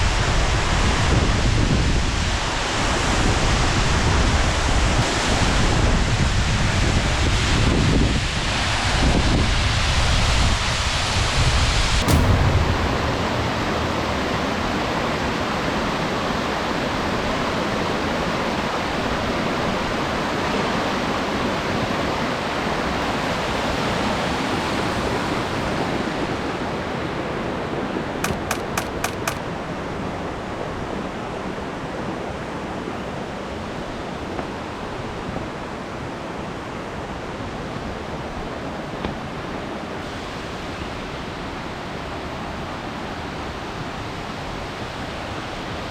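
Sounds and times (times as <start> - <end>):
quick faint clicks: 28.2 - 29.4.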